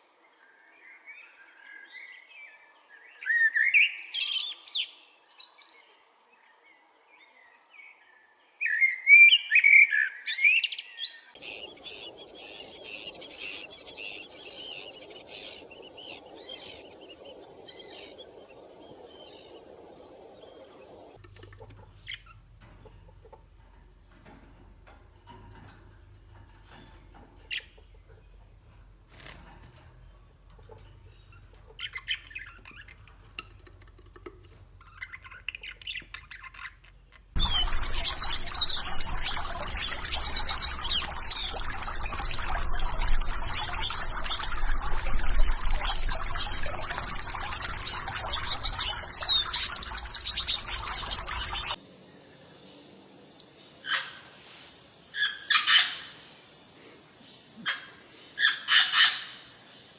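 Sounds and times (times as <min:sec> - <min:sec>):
songbirds chirping: 0:11.1 - 0:59.9
high sweeping bird calls: 0:11.3 - 0:51.8
steady background hiss: 0:11.4 - 0:59.9.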